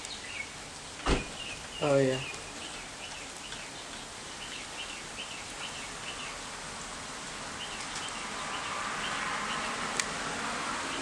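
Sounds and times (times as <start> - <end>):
bird chirping: 0.0 - 6.6, 7.6 - 9.9
rain hissing: 0.0 - 11.0.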